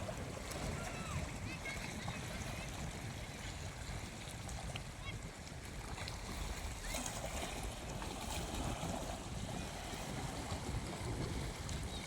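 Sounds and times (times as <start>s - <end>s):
surf washing: 0.0s - 5.2s
wind buffeting microphone: 7.2s - 12.0s.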